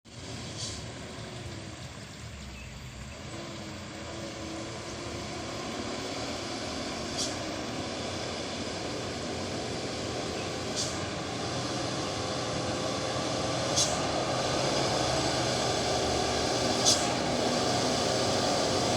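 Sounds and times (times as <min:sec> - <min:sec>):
diesel truck engine running: 0:00.0 - 0:18.9.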